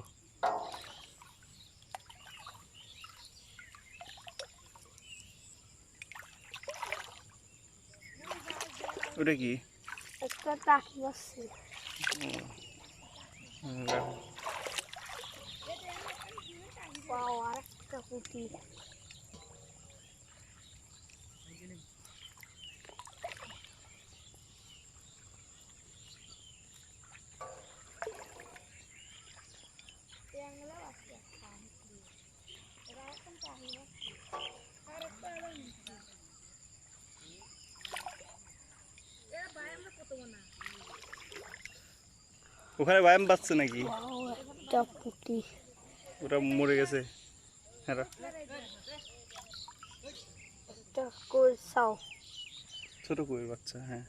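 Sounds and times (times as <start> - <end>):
small knocks or splashes: 0.0 - 31.7, 32.5 - 36.2, 37.1 - 42.0, 43.1 - 45.4, 49.2 - 50.2
bird chirps: 0.0 - 54.0
insect drone: 0.0 - 54.0.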